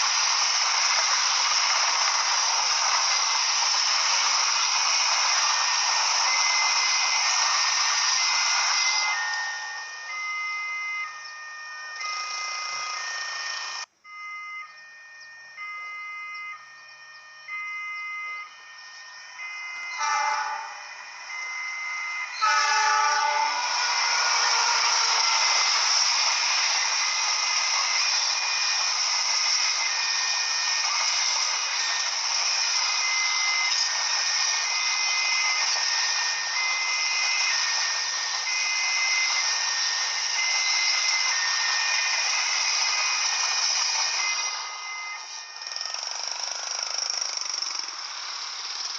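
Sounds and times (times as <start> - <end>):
level crossing two-tone alarm: 0.0 - 48.9
loud hiss: 22.4 - 44.8.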